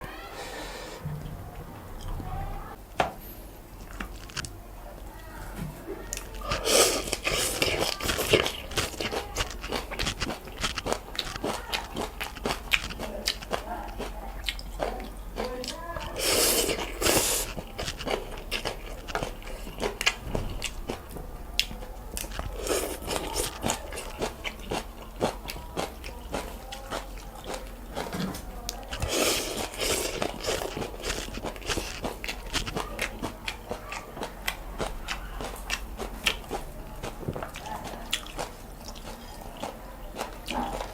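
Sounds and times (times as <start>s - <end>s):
wet crunchy chewing: 3.8s - 4.5s, 6.0s - 40.9s
slurping noodles: 6.4s - 9.1s, 16.1s - 18.2s, 29.0s - 32.2s.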